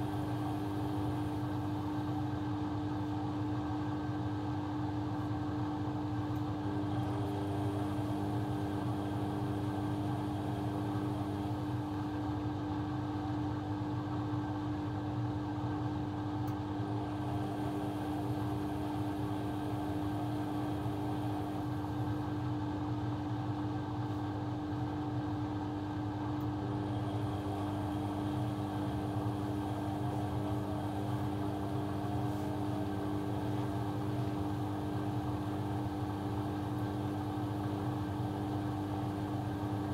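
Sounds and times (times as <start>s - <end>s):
electric motor humming: 6.7s - 12.0s, 16.9s - 22.3s, 26.7s - 39.9s.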